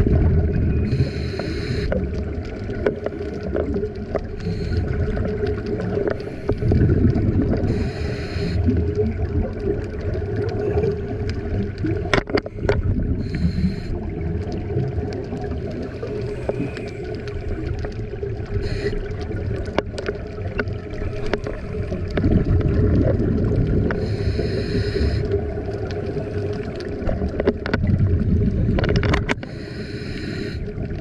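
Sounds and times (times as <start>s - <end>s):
underwater bubbling rumble: 0.0s - 31.0s
regulator breath hiss: 0.9s - 1.9s, 4.4s - 4.8s, 7.7s - 8.7s, 13.2s - 14.0s, 18.6s - 19.1s, 24.0s - 25.3s, 29.4s - 30.7s.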